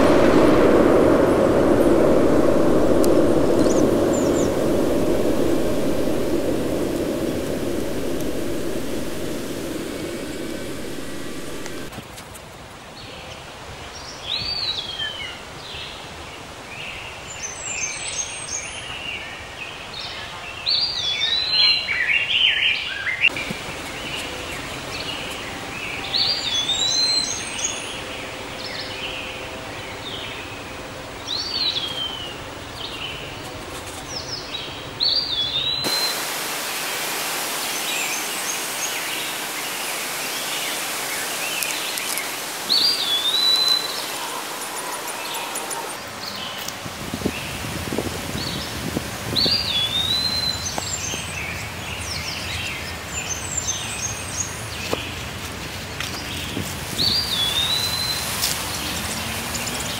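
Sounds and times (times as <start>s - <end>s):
steady hiss: 0.0s - 11.9s, 35.6s - 46.0s, 56.5s - 59.9s
outdoor background noise: 0.0s - 59.9s
bird chirps: 37.6s - 46.0s
whistled bird call: 37.7s - 46.0s, 49.4s - 50.9s.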